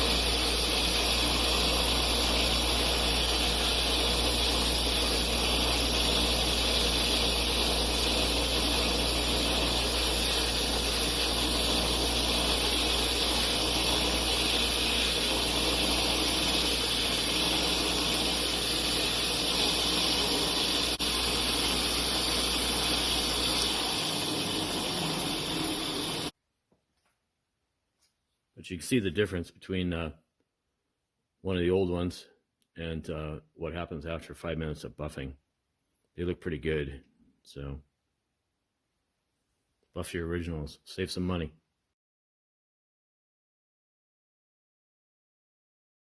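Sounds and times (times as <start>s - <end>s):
buffing wheel whirring hiss: 0.0s - 26.4s.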